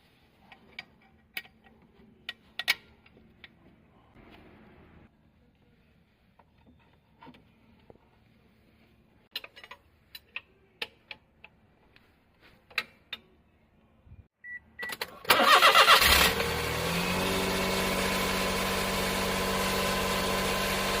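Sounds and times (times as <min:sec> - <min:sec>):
engine cranking and starting: 0:15.0 - 0:18.4.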